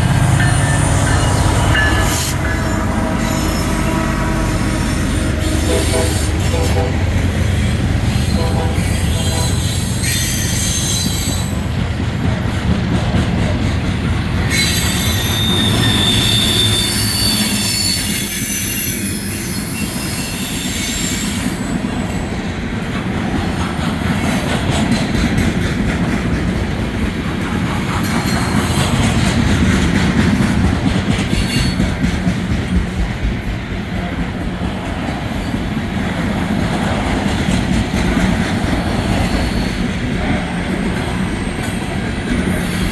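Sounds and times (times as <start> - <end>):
freight train wheels rumbling on rail: 0.0 - 42.9
high-pitched wheel squeal: 8.3 - 11.5, 14.2 - 21.6.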